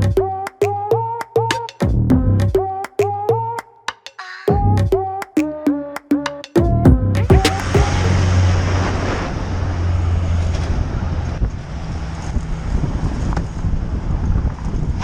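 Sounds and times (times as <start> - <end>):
low engine drone: 7.1 - 14.2
road noise from moving vehicle: 7.3 - 15.0
wind buffeting microphone: 7.4 - 15.0.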